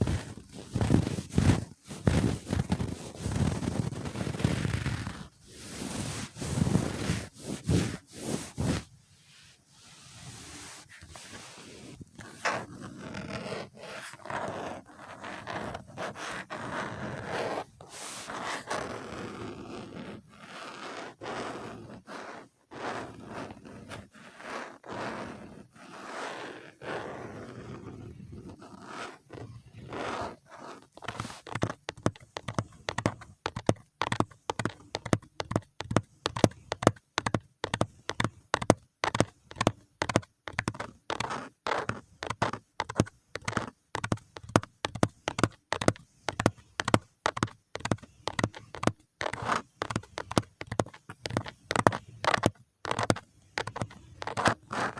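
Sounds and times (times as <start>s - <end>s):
brushing strokes: 0.0s - 12.0s, 17.9s - 18.6s, 30.7s - 31.5s.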